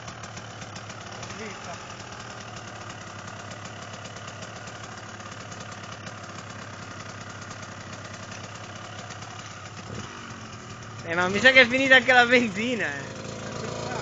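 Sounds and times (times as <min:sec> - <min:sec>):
motorbike engine idling: 0:00.0 - 0:14.0.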